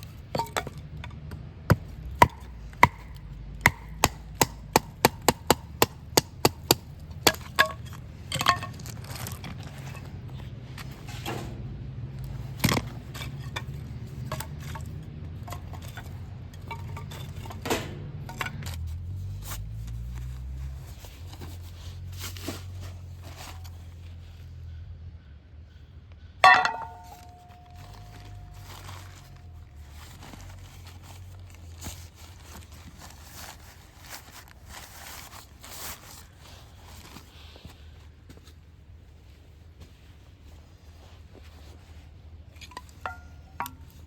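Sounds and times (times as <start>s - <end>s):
ringing metal clank: 26.4s - 28.9s.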